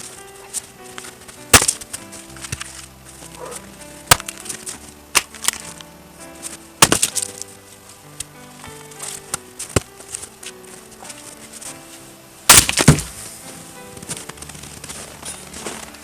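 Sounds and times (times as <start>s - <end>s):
background music: 0.0s - 16.0s
wood being struck: 1.0s - 5.8s, 6.8s - 7.4s, 8.6s - 10.3s, 12.5s - 13.3s.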